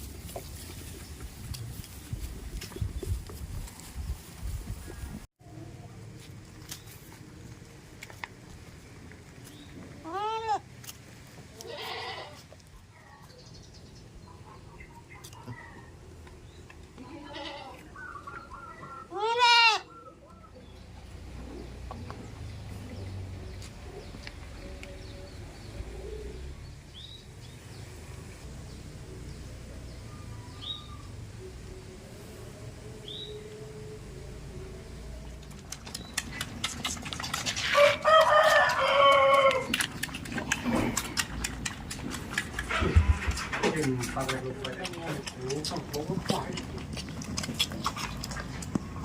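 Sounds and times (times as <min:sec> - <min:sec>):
goat bleating: 0:10.0 - 0:10.7, 0:11.5 - 0:12.5, 0:17.0 - 0:17.9, 0:19.1 - 0:19.9
rooster crowing: 0:37.7 - 0:39.8.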